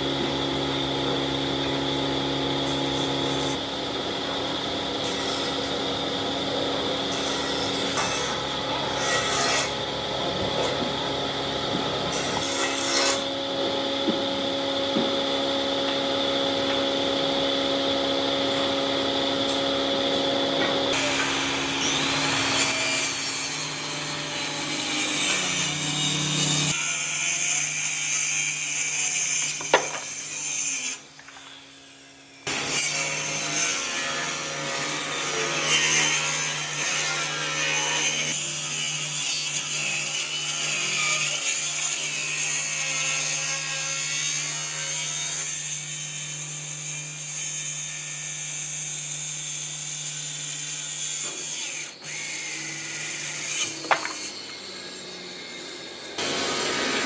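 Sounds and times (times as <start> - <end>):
power tools cutting wood: 0.0 - 57.0.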